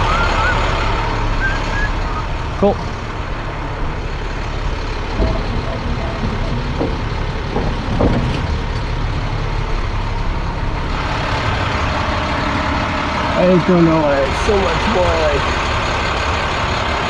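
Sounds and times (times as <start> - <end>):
tow truck engine running: 0.0 - 17.0
metal clanks: 2.8 - 10.3.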